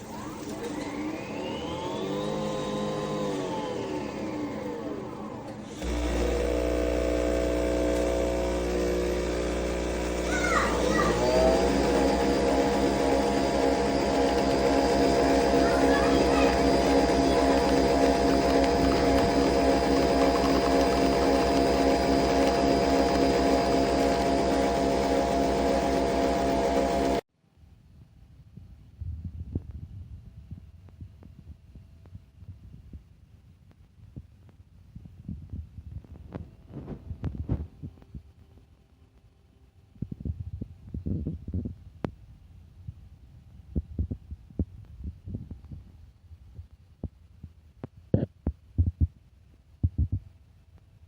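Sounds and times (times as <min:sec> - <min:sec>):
coffee machine humming and buzzing: 0:00.0 - 0:27.2
coffee machine motor whir: 0:00.0 - 0:27.2.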